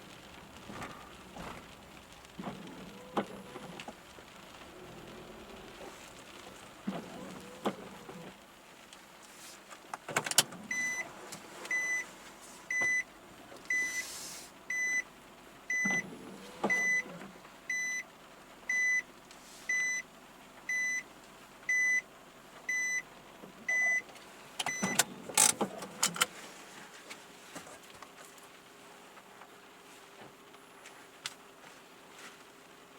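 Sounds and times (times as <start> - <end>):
car warning chime beeping: 10.7 - 11.1, 11.7 - 12.1, 12.7 - 13.1, 13.7 - 14.0, 14.7 - 15.1, 15.7 - 16.1, 16.7 - 18.1, 18.7 - 19.1, 19.7 - 20.1, 20.7 - 21.1, 21.7 - 22.1, 22.7 - 23.1, 23.7 - 26.2.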